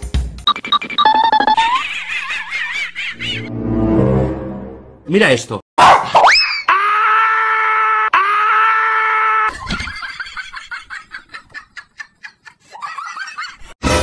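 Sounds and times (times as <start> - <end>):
short yelps and squeals: 5.8 - 6.8.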